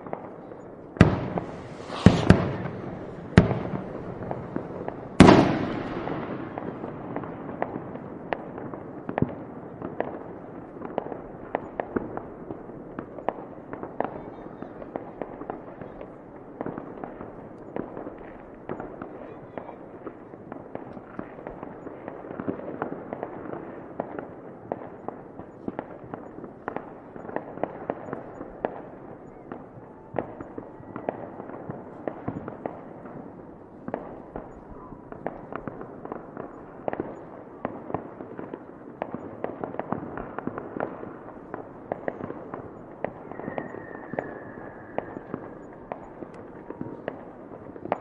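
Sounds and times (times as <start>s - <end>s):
faint firework whistle: 0.0s - 6.7s, 27.1s - 32.8s, 34.2s - 35.8s, 42.0s - 47.2s
fireworks cracks and bangs: 0.0s - 10.2s, 10.8s - 48.0s.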